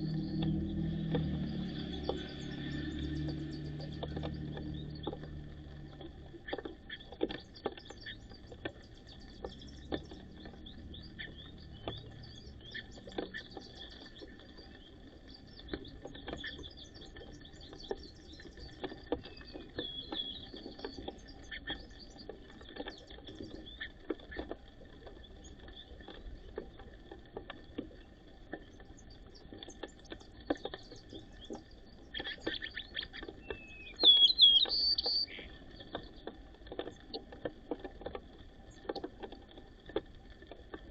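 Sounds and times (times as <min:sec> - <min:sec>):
sparrows chirping: 0:00.0 - 0:24.0, 0:28.8 - 0:36.3.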